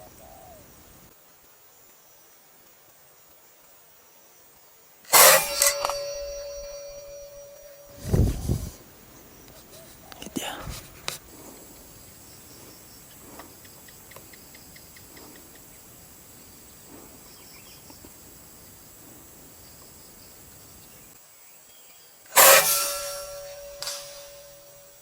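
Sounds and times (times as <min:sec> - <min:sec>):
steady ringing tone: 0:05.1 - 0:08.1, 0:22.4 - 0:25.0.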